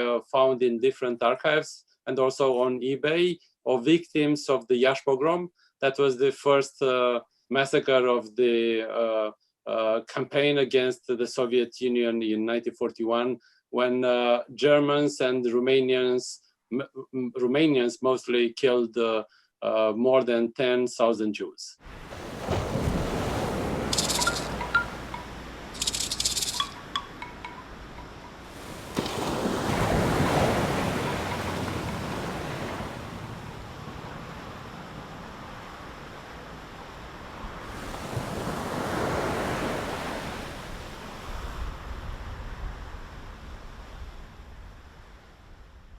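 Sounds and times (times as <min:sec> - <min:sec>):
ocean surf washing in: 0:21.8 - 0:44.4
chime-like tinkles: 0:24.0 - 0:28.6.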